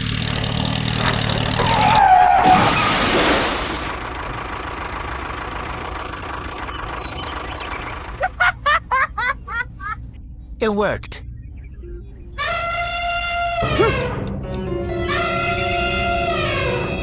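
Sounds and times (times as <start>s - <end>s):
person speaking: 13.7s - 14.6s.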